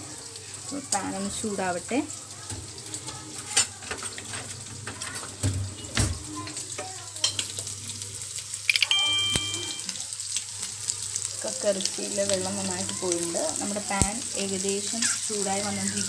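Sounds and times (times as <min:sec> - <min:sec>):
prawns sizzling in a pan: 0:00.0 - 0:16.0
short high-pitched tone: 0:08.7 - 0:09.9.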